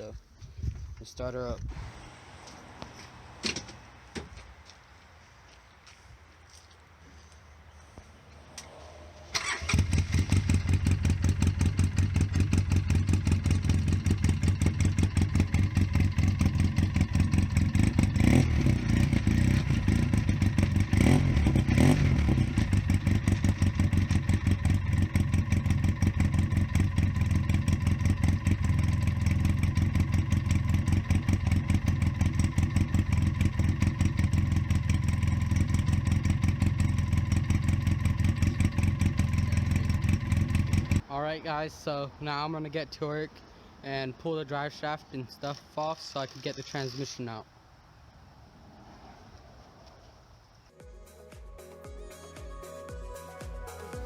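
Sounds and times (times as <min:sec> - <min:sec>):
engine idling loudly: 0:22.7 - 0:41.0.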